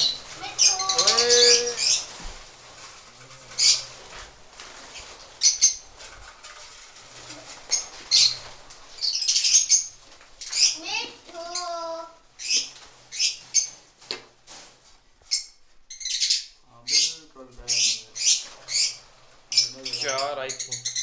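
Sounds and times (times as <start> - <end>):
birds shrill chirping: 0.0 - 21.0.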